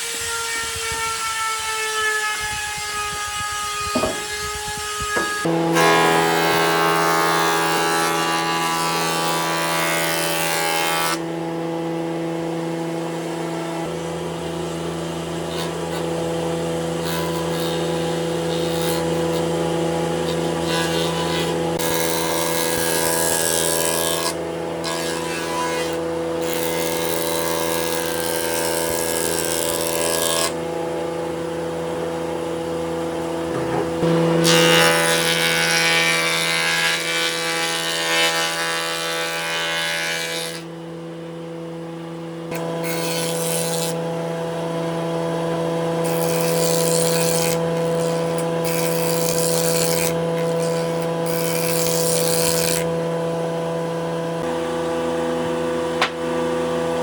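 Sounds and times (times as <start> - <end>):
power tool motor running: 2.4 - 8.1, 25.9 - 34.6.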